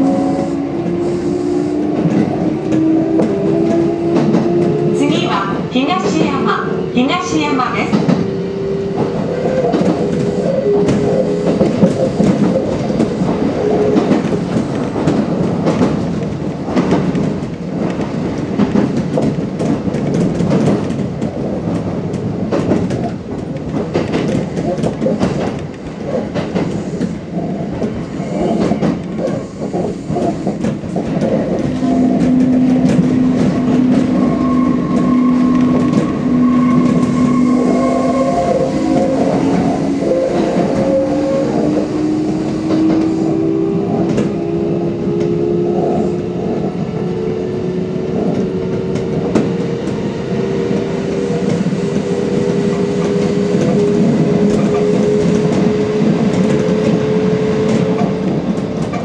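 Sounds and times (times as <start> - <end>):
train motor whine: 0.0 - 5.0, 31.5 - 58.4
train wheel clicks: 0.0 - 6.6, 7.2 - 47.2, 48.0 - 59.0
train rail rumble: 0.0 - 59.0.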